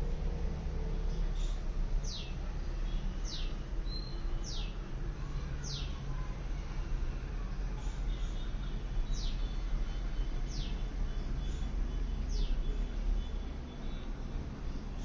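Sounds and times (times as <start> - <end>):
low background rumble: 0.0 - 15.0
birds chirping: 1.2 - 4.8, 5.6 - 6.1.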